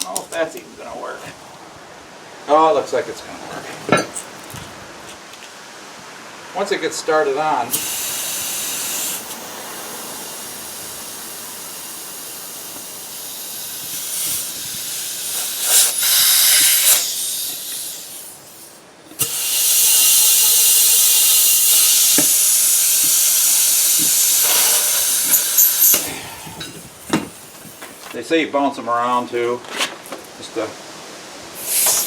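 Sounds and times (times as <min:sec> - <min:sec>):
compressed air hissing: 0:07.7 - 0:28.2, 0:31.5 - 0:32.0.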